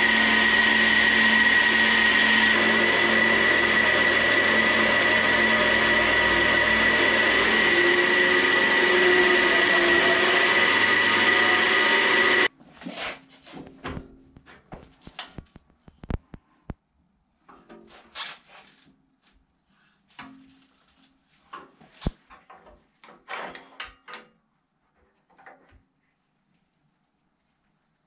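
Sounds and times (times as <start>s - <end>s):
wood lathe boring wood: 0.0s - 12.5s.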